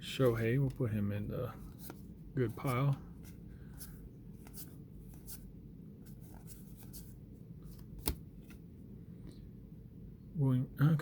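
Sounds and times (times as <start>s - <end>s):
cards sliding against each other: 2.6s - 8.6s.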